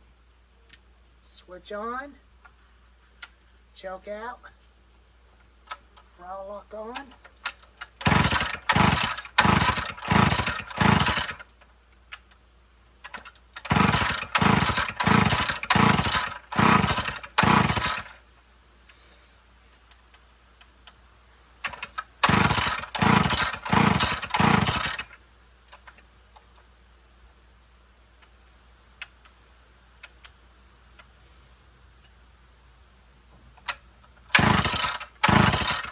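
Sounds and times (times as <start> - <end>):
chainsaw recoil starter pulls: 7.0 - 11.6, 13.0 - 18.2, 21.6 - 26.0, 33.6 - 35.9.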